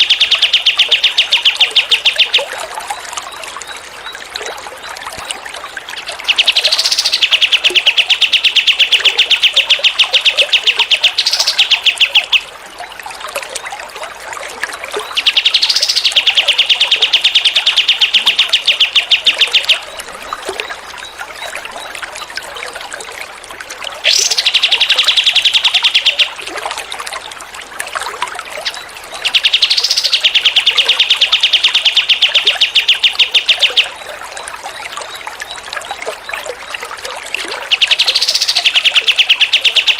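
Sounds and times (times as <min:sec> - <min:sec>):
songbird trills: 0:00.0 - 0:04.2, 0:05.9 - 0:12.5, 0:15.0 - 0:22.0, 0:24.0 - 0:26.5, 0:28.5 - 0:39.9
trickling water: 0:00.0 - 0:39.9.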